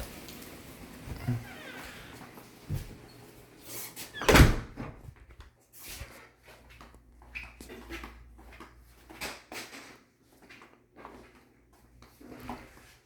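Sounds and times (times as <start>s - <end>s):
door shutting with a thud: 1.1s - 2.1s, 4.2s - 5.0s.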